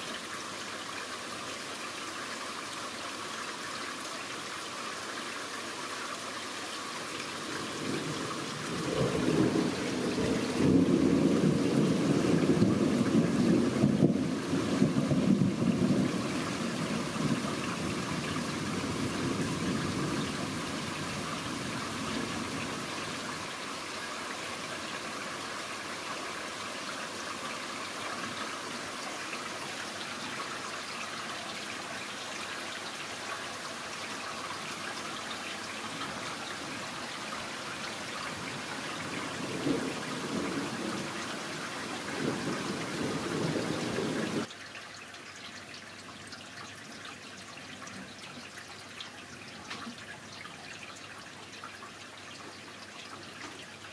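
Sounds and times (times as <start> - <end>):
rain hissing: 6.5 - 44.5.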